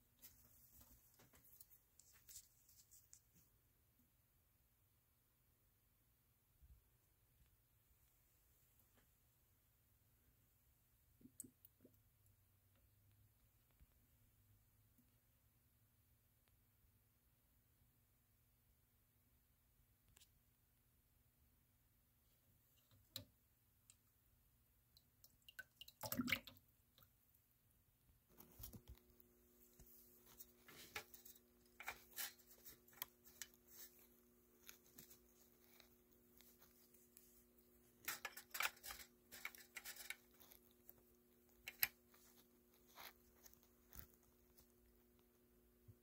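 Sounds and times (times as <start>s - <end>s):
faint steady hum: 0.0s - 46.0s
water dripping in container: 24.9s - 27.1s
water splash: 25.8s - 26.5s
handling clicks and scrapes: 29.7s - 44.7s.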